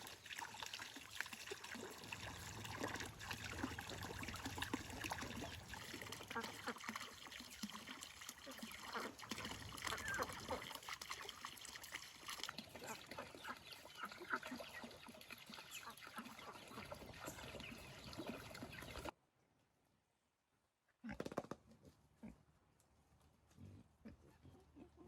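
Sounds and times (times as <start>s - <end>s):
farm animals calling: 8.4s - 10.8s, 12.7s - 19.1s.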